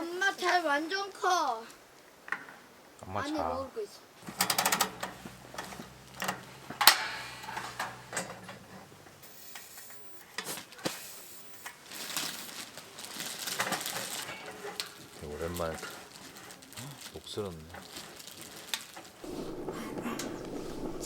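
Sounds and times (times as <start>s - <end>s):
camp gear clicks and clatter: 4.2s - 21.0s
low hum: 19.2s - 21.0s.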